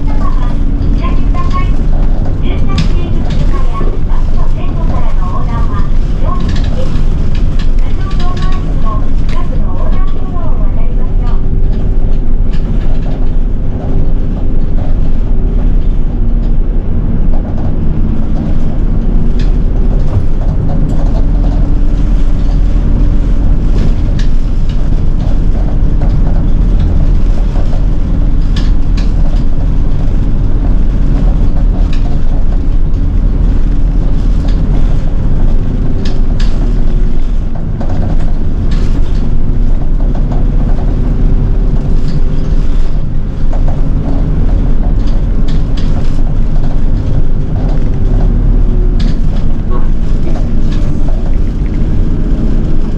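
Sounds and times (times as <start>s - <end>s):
bus engine and road rumble: 0.0s - 52.9s
drivetrain whine: 0.0s - 52.9s
small rattles: 17.3s - 52.9s.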